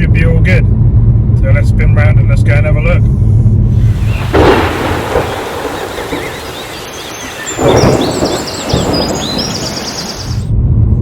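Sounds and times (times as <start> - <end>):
gusty wind on microphone: 3.1 - 11.0
small birds chirping: 3.8 - 10.5.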